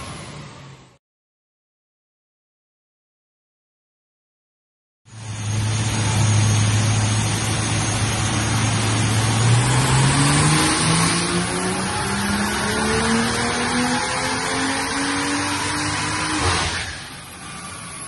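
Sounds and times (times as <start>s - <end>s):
car engine revving on a dyno: 5.1s - 18.0s.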